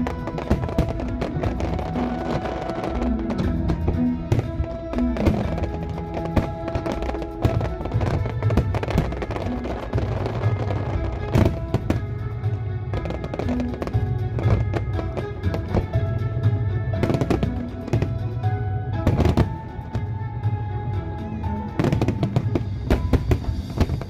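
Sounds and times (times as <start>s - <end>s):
fireworks bursting in sharp bangs: 0.0s - 20.5s, 21.6s - 24.0s
loud music: 0.0s - 24.0s.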